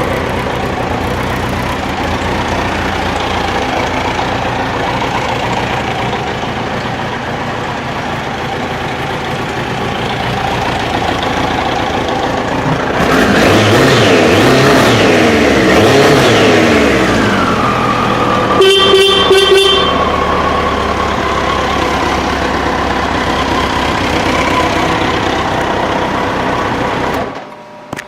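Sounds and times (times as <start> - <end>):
motorcycle engine running: 0.0 - 27.4
motorcycle horn: 18.5 - 20.2.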